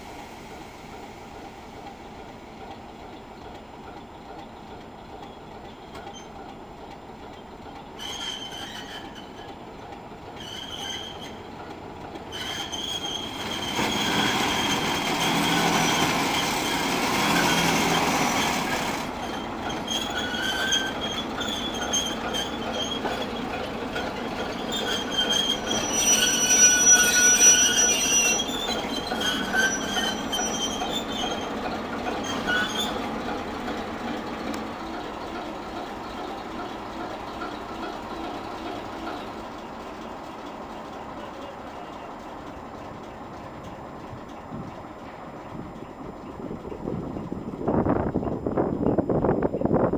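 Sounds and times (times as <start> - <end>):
locomotive rolling slowly: 0.0 - 49.9
train wheels squealing: 5.1 - 6.6, 7.3 - 33.5.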